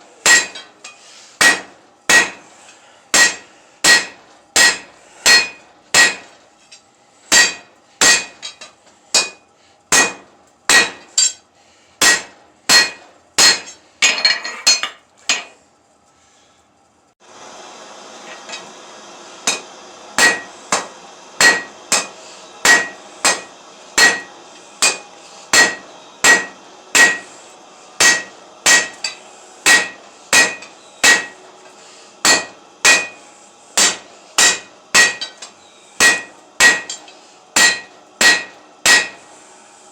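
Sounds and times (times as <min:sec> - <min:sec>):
hammer striking steel on anvil: 0:00.2 - 0:02.5, 0:03.1 - 0:06.4, 0:07.3 - 0:11.4, 0:12.0 - 0:15.5, 0:19.4 - 0:27.4, 0:28.0 - 0:31.5, 0:32.2 - 0:39.3.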